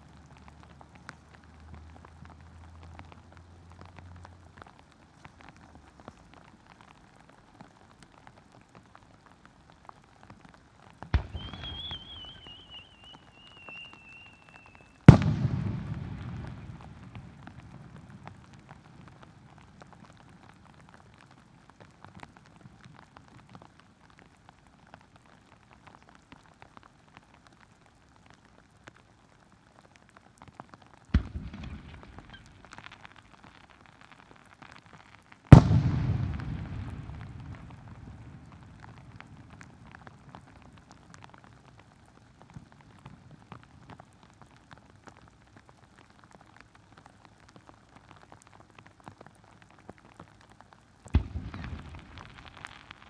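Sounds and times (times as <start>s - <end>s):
heavy rain pattering: 0.0s - 53.0s
firework bursting with rumbling echo: 11.1s - 14.4s, 15.1s - 19.6s, 31.1s - 32.9s, 35.5s - 40.3s, 51.1s - 53.0s
firework whistle: 11.2s - 15.3s.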